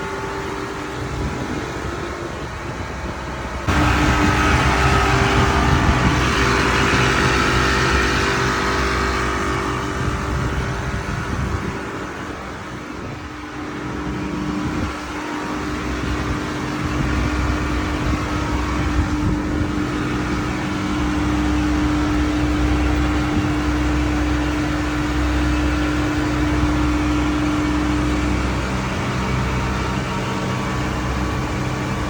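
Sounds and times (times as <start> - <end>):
chiller machinery humming: 0.0 - 32.0
deep low rumble: 3.7 - 13.3.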